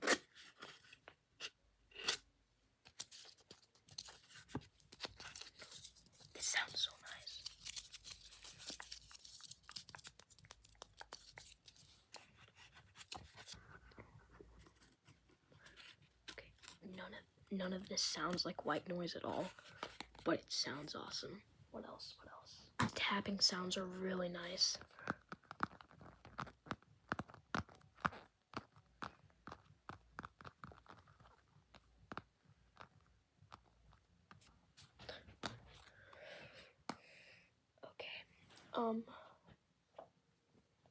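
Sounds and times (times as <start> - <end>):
fingers scratching and tapping object: 25.0 - 34.5.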